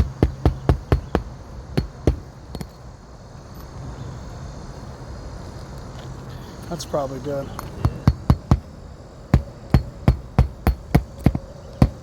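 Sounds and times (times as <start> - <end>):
hammer striking nails: 0.0 - 2.7, 7.6 - 8.7, 9.3 - 12.0.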